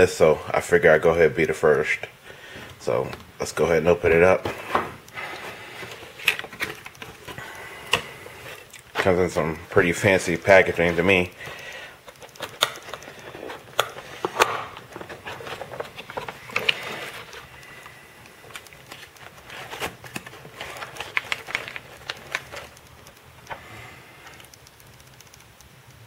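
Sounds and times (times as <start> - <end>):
packaging rustling: 2.6 - 24.5
packaging clicks and snaps: 5.0 - 9.2, 10.6 - 23.6.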